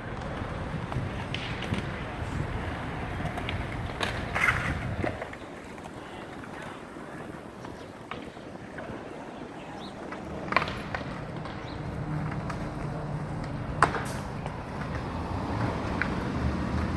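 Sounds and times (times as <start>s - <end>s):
city street traffic: 0.0s - 16.9s
vehicle engine hum: 10.2s - 16.9s.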